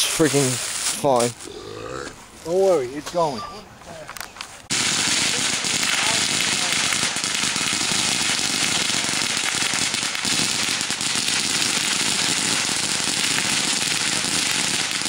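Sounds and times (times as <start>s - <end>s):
firecrackers crackling: 4.3s - 15.0s.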